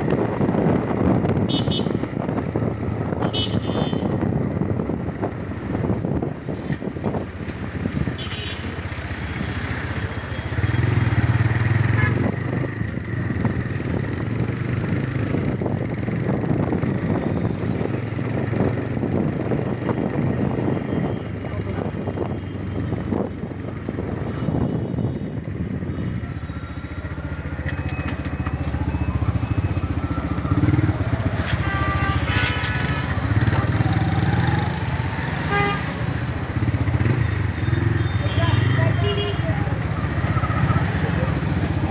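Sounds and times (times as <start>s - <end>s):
road and wind noise: 0.0s - 41.9s
vehicle horns: 1.5s - 2.1s, 3.2s - 4.3s, 8.1s - 12.4s, 31.2s - 39.8s.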